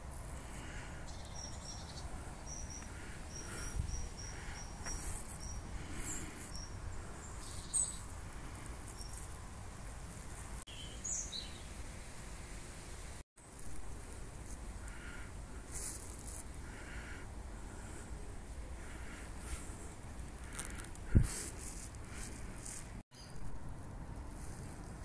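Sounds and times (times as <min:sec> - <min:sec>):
small bird calling: 0:00.4 - 0:09.3
footsteps on leaves: 0:15.7 - 0:16.5, 0:20.3 - 0:23.0.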